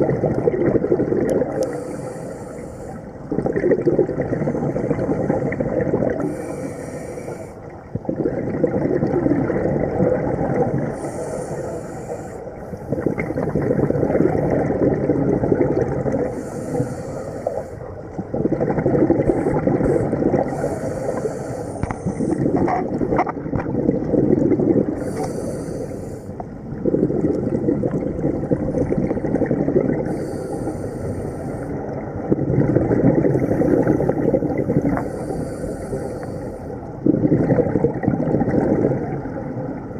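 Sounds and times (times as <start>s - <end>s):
exhaled bubbles rumbling: 0.0s - 2.1s, 3.0s - 39.9s
regulator inhale hiss: 1.6s - 3.2s, 6.2s - 7.6s, 10.9s - 13.1s, 16.3s - 17.9s, 19.2s - 22.6s, 25.0s - 26.4s, 30.0s - 31.8s, 33.3s - 36.8s.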